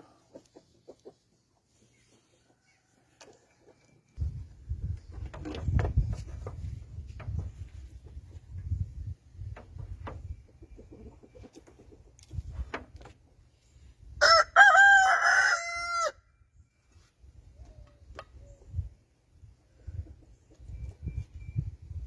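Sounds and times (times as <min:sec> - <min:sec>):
rooster crowing: 0:14.2 - 0:16.2.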